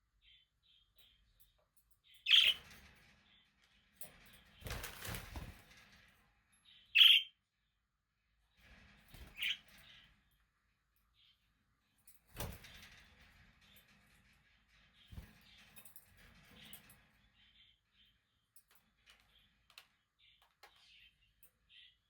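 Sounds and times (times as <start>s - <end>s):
faint bird twittering: 6.8s - 7.3s.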